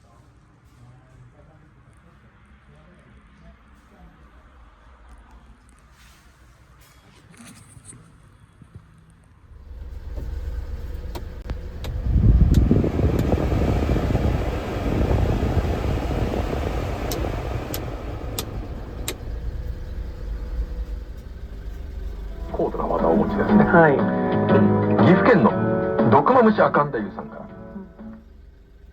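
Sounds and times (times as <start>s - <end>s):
small truck engine rumbling: 9.5s - 28.9s
faint sharp clicks: 11.1s - 13.3s, 17.1s - 19.7s.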